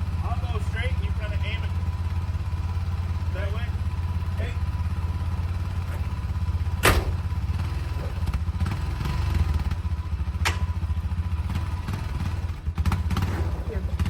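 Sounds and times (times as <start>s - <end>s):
vehicle engine running: 0.0s - 14.0s
sharp knocks: 6.8s - 7.4s, 10.4s - 10.8s.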